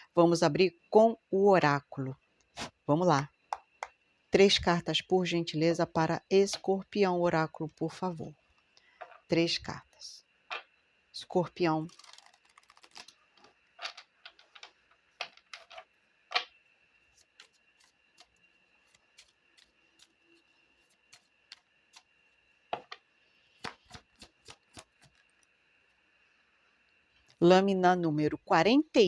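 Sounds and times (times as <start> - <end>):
faint high whine: 0.0 - 29.0
cards being shuffled: 11.9 - 15.8.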